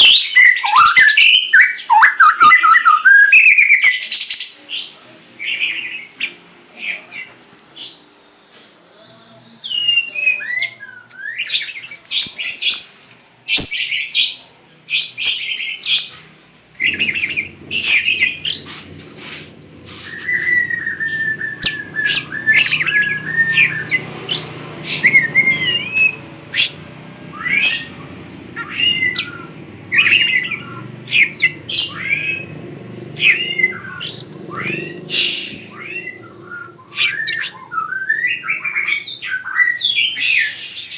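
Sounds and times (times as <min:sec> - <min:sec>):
bird chirping and whistling: 0:00.0 - 0:04.6, 0:09.6 - 0:40.9
low steady hum: 0:16.1 - 0:38.3.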